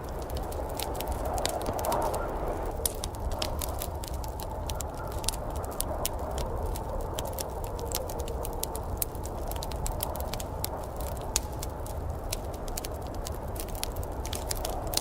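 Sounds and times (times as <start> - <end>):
low rushing noise: 0.0 - 3.0
wood fire crackling and popping: 0.0 - 15.0.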